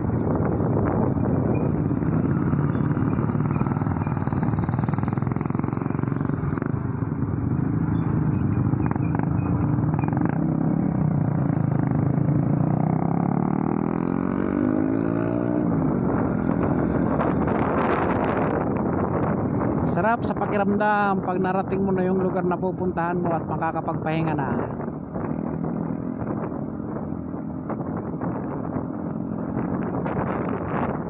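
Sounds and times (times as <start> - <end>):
motorcycle engine accelerating: 0.0 - 19.8.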